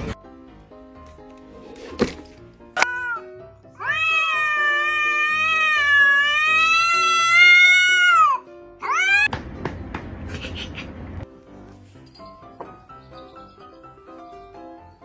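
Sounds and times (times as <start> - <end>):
background music: 0.0 - 9.8, 11.2 - 15.0
cat meowing: 2.8 - 9.3.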